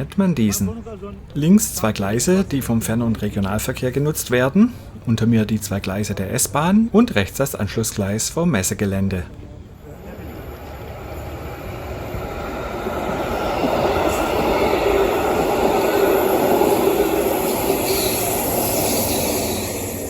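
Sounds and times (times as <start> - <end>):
electric train running on tracks: 9.7 - 20.0.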